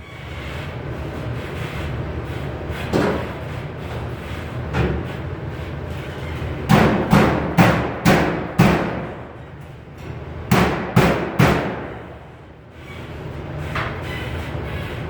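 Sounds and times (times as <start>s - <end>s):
hammer striking sheet metal: 6.7s - 9.2s, 10.5s - 12.1s.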